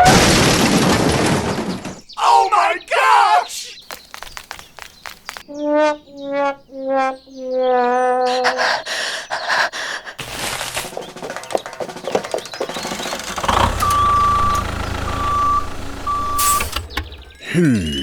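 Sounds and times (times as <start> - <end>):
clattering mechanical noise: 10.2 - 17.5
low engine rumble: 11.0 - 17.5
truck reversing alarm beeps: 12.7 - 18.0.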